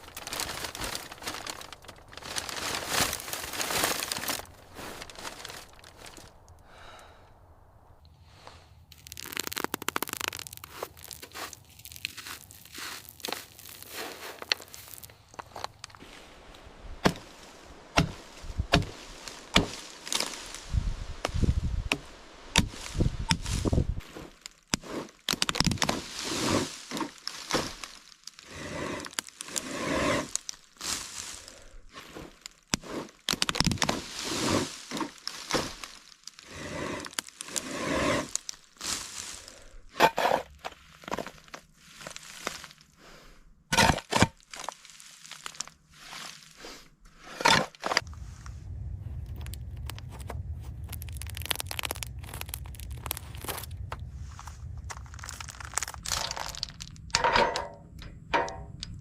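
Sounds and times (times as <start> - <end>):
sharp cracks: 8.9 - 13.5, 49.2 - 54.1, 54.8 - 59.0
scraping cracking and knocking: 24.0 - 30.6, 32.1 - 38.6, 49.3 - 59.0
steady low hum: 48.0 - 59.0.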